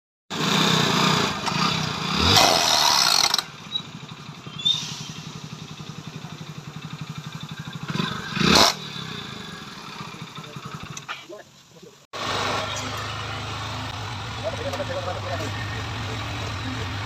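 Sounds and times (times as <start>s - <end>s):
motorcycle engine revving and idling: 0.3s - 17.0s.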